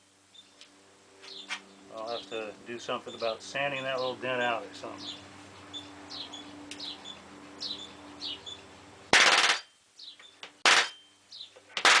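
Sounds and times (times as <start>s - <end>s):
birds chirping: 0.3s - 9.1s, 9.8s - 11.7s
nailer hammering nails into wood: 9.1s - 9.7s, 10.6s - 11.0s, 11.8s - 12.0s.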